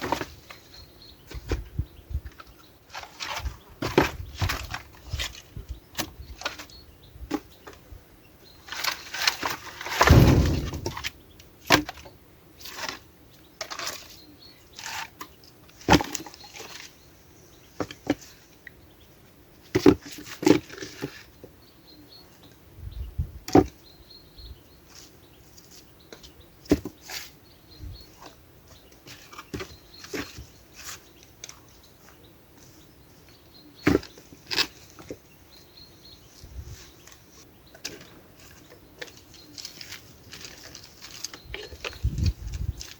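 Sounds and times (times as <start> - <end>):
rustle: 0.0 - 42.9
wood knocking: 10.1 - 11.1.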